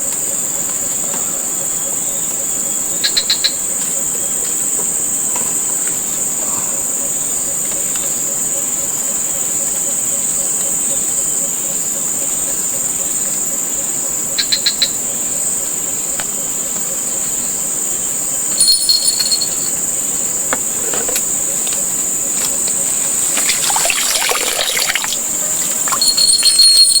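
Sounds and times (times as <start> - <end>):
high-pitched insect drone: 11.0 - 20.5, 21.3 - 27.0.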